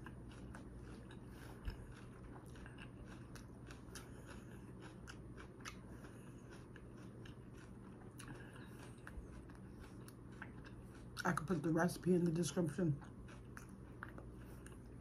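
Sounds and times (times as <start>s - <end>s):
wet mouth clicks chewing: 0.0s - 11.6s.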